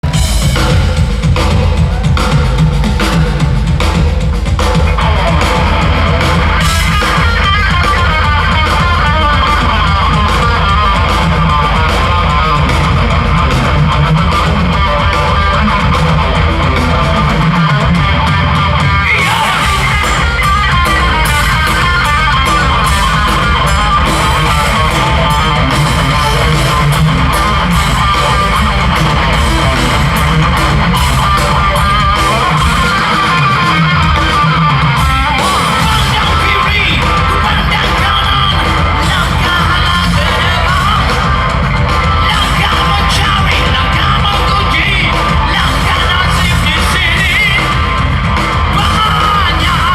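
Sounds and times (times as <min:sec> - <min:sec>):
electric guitar: 0:00.0 - 0:49.9
rock band playing: 0:00.0 - 0:49.9.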